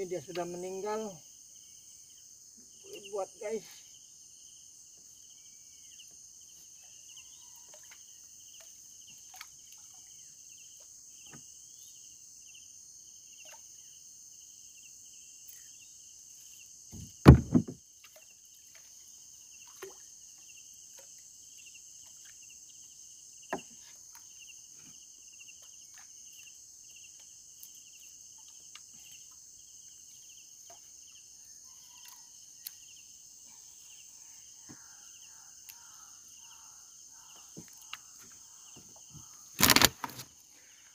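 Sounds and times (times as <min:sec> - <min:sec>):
insect chorus with pulsing trill: 0:00.0 - 0:40.9
loud thump: 0:16.9 - 0:17.8.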